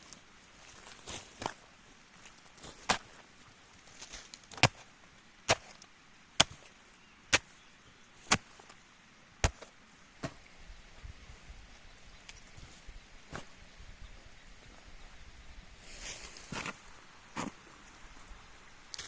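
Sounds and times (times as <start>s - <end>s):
blade chopping wood: 6.4s - 6.6s, 9.4s - 9.7s.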